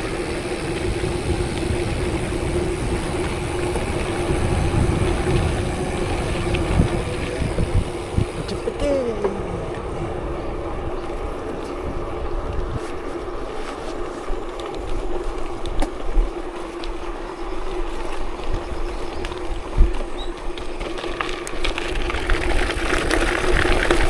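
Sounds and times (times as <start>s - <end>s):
vehicle hum and rumble: 0.0s - 17.1s.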